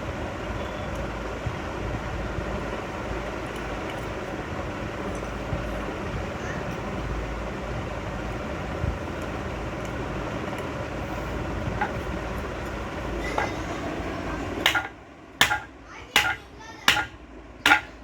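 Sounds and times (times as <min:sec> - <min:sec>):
steady background hum: 0:00.0 - 0:18.0
hammer blows on metal: 0:14.7 - 0:18.0.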